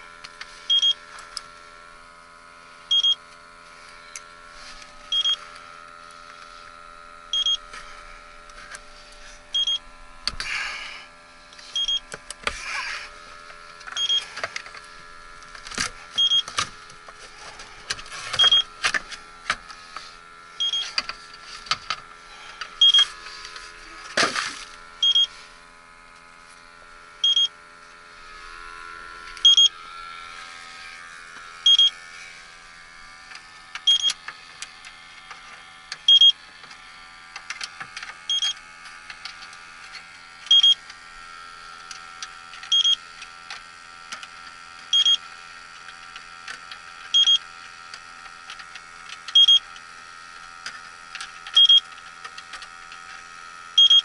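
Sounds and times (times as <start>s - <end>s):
leak detector beeping: 0.6s - 1.2s, 2.9s - 3.4s, 5.0s - 6.4s, 7.3s - 7.8s, 9.5s - 9.9s, 11.6s - 12.2s, 13.9s - 14.7s, 16.1s - 16.7s, 18.3s - 19.0s, 20.5s - 21.1s, 22.7s - 23.4s, 25.0s - 25.4s, 27.2s - 27.6s, 29.4s - 29.9s, 31.6s - 32.0s, 33.8s - 34.4s, 36.0s - 36.5s, 38.3s - 38.6s, 40.4s - 40.9s, 42.6s - 43.1s, 44.9s - 45.3s, 47.1s - 47.5s, 49.2s - 49.8s, 51.5s - 52.0s, 53.7s - 54.0s.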